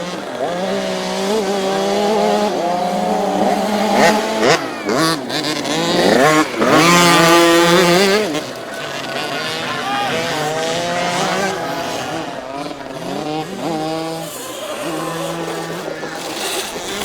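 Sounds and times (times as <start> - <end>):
motocross bikes revving: 0.0 - 17.0.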